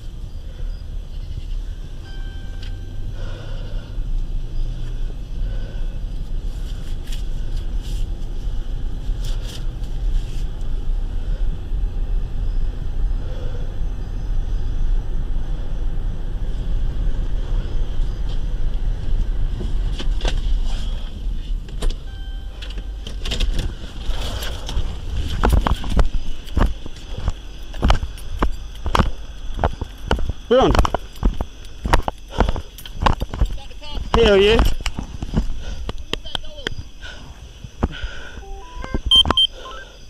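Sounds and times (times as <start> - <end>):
car engine and road noise: 0.0 - 40.0
short beep: 2.0 - 3.1, 22.0 - 23.0, 38.4 - 40.0.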